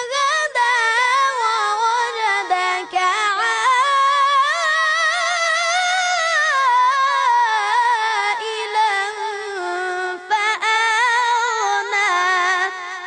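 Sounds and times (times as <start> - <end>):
child chanting recitation: 0.0 - 13.0.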